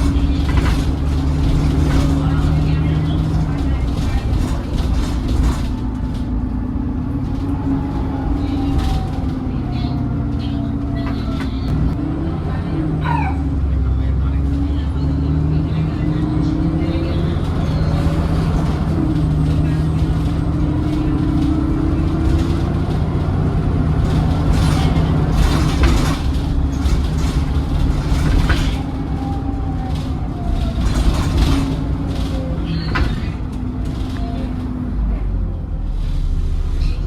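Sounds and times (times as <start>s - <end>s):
rattles and knocks: 0.0s - 12.0s, 17.4s - 34.8s
bus engine drone with whine: 0.0s - 37.0s.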